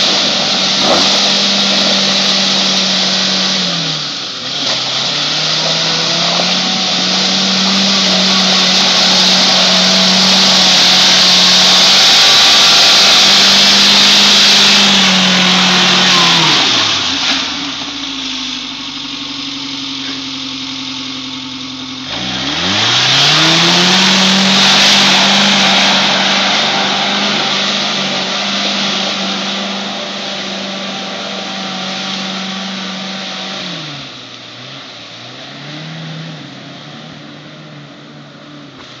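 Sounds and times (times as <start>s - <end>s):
off-road vehicle engine revving: 0.0s - 39.0s.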